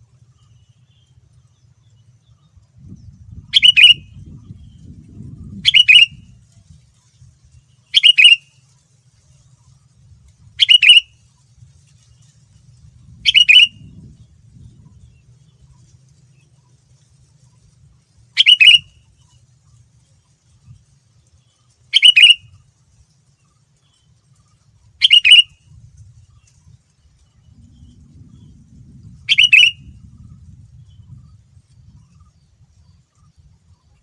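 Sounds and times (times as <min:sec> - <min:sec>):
faint low hum: 0:00.0 - 0:34.0
bird calling: 0:03.4 - 0:04.3, 0:05.5 - 0:06.2, 0:07.9 - 0:08.6, 0:10.6 - 0:11.1, 0:13.2 - 0:13.8, 0:18.4 - 0:19.2, 0:21.9 - 0:22.6, 0:25.0 - 0:25.6, 0:29.2 - 0:30.0.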